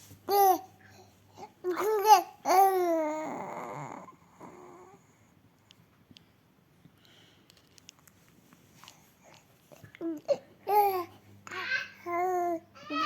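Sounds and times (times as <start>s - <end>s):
baby cooing: 1.6s - 5.0s, 9.9s - 13.0s
faint small clicks: 5.6s - 10.0s.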